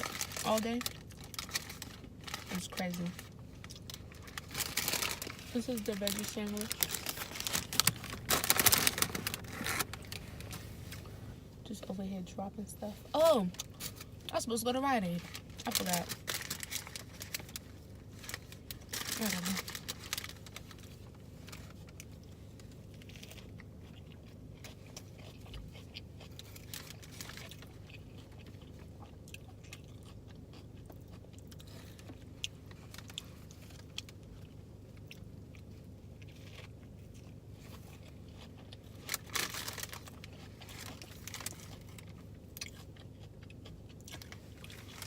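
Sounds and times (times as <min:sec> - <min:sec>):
soft crunches and mouth noises: 0:00.0 - 0:11.5, 0:15.2 - 0:45.0
steady low hum: 0:00.0 - 0:45.0
person chewing sandwich: 0:06.1 - 0:11.3, 0:16.2 - 0:45.0.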